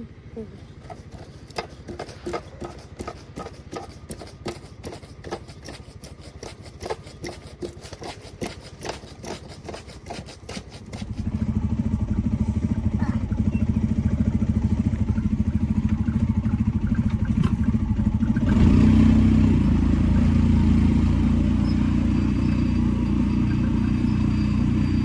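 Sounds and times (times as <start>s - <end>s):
loud engine rumble: 10.8s - 25.0s
vehicle engine running low: 11.0s - 25.0s.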